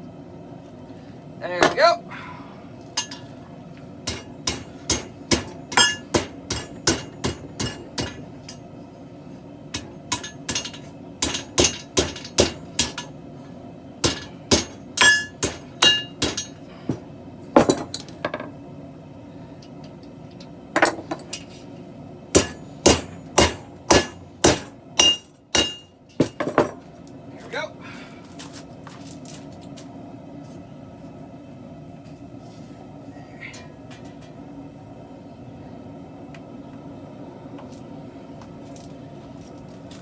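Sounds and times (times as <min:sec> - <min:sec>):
hammer striking steel: 0:04.1 - 0:08.3, 0:09.8 - 0:13.1, 0:14.0 - 0:16.6, 0:22.4 - 0:26.4.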